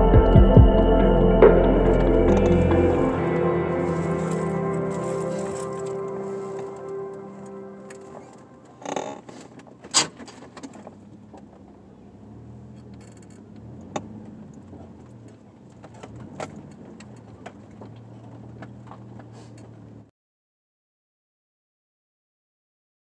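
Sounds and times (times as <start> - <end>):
vehicle engine humming: 0.0 - 20.1.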